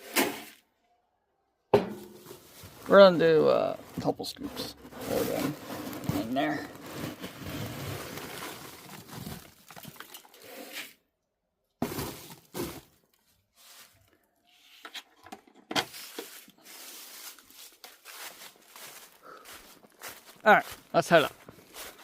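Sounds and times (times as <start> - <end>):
grain rustling and rattling: 2.2 - 10.8.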